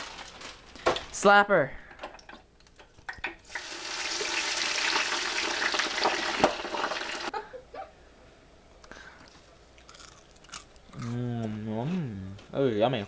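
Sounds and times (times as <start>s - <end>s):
fries sizzling in hot oil: 3.5s - 7.3s.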